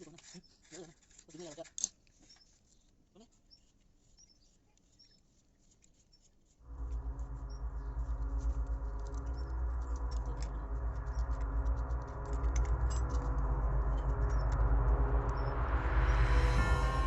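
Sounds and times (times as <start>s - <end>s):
rising whoosh: 6.7s - 17.0s.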